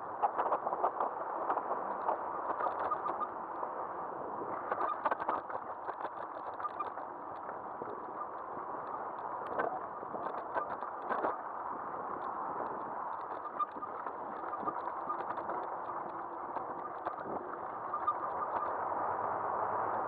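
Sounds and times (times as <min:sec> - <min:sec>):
wind: 0:00.0 - 0:20.0
small rattles and clicks: 0:04.7 - 0:11.4.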